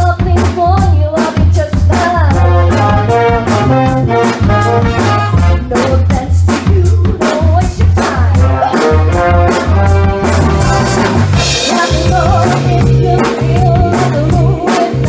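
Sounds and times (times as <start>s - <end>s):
bass guitar: 0.0s - 15.0s
drum kit beat: 0.0s - 15.0s
horn line: 2.2s - 6.2s, 8.4s - 15.0s.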